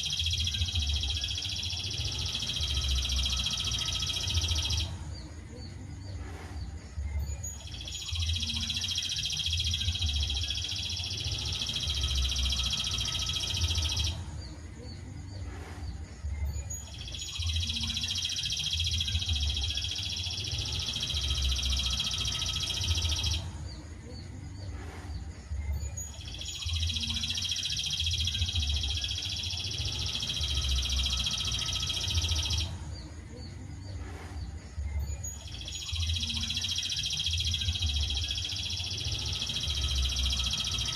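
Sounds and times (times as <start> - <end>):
songbird trilling: 0.0 - 4.9, 7.2 - 14.2, 16.6 - 23.4, 25.8 - 32.7, 35.1 - 40.9.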